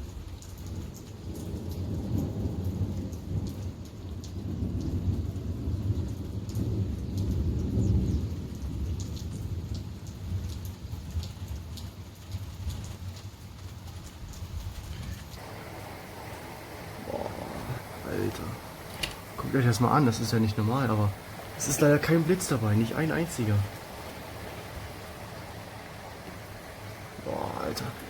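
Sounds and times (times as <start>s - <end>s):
raindrops ticking: 0.0s - 28.0s
rolling thunder rumble: 15.4s - 28.0s.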